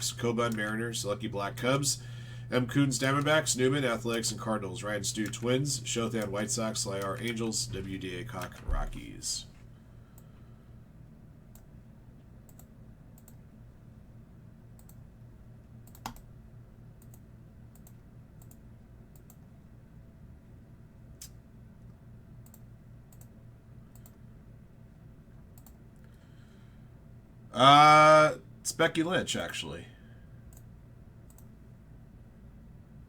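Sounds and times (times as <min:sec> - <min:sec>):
low steady hum: 0:00.0 - 0:33.0
computer clicks and keystrokes: 0:05.0 - 0:09.1, 0:11.5 - 0:11.7, 0:12.4 - 0:13.4, 0:14.8 - 0:15.0, 0:15.8 - 0:16.3, 0:17.0 - 0:19.5, 0:22.4 - 0:24.2, 0:25.5 - 0:26.1, 0:30.5 - 0:31.6.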